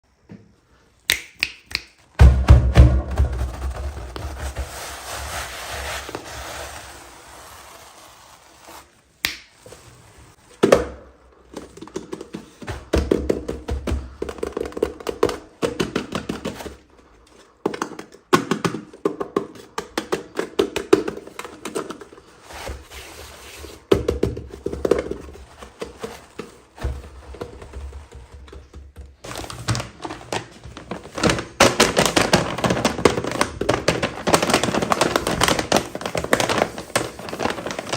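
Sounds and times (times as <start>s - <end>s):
plastic packaging crinkling and tapping: 9.2s - 22.9s, 23.9s - 37.9s.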